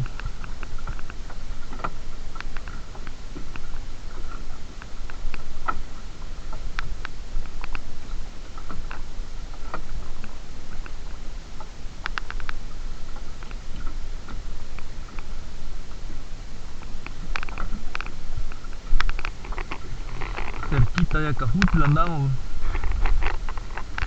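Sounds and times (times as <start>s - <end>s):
steady low rumble: 19.2s - 24.0s.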